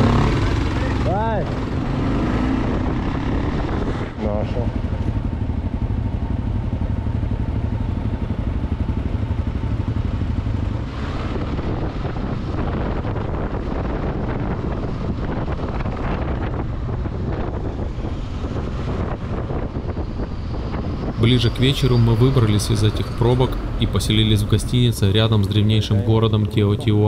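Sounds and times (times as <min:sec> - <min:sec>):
motorcycle engine running: 0:00.0 - 0:21.2
wind and road noise: 0:00.0 - 0:27.0.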